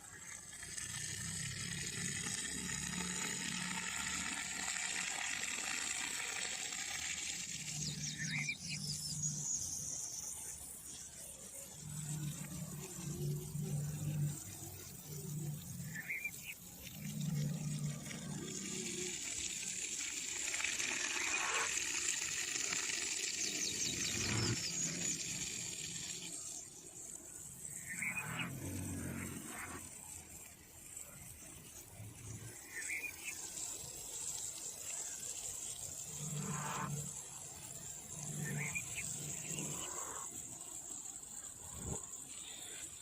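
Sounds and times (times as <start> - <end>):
water hissing: 0.0 - 43.0
bird chirps: 7.6 - 10.6, 23.3 - 26.1.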